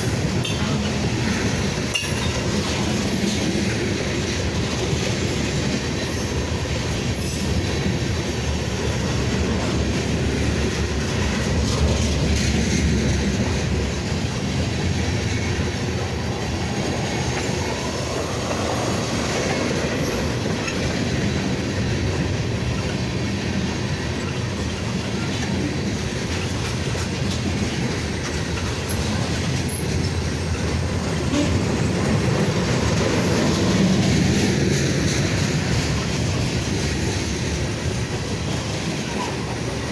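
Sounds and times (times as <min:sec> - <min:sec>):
train wheels rolling on rail: 0:00.0 - 0:39.9.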